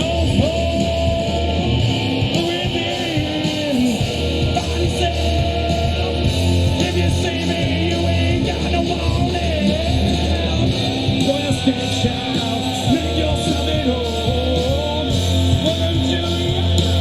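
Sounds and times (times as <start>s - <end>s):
live rock band playing: 0.0s - 17.0s
person singing: 0.0s - 17.0s.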